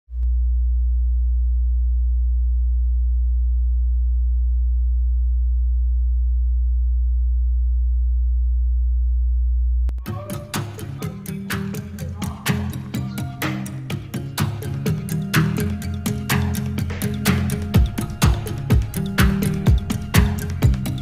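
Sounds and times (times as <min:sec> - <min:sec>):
deep low hum: 0:00.2 - 0:10.0
music with sharp percussive strikes: 0:10.0 - 0:21.0.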